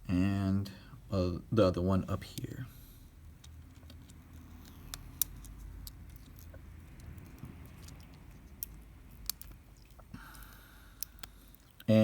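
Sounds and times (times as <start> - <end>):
low steady hum: 0.0 - 12.0
small parts clicking and tapping: 3.4 - 11.9.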